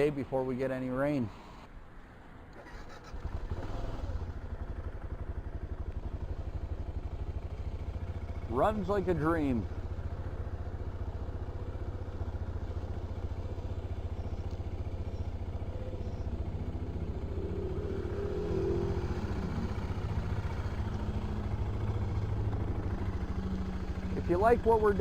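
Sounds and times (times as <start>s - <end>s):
motorcycle engine pulsing exhaust: 3.2s - 25.0s.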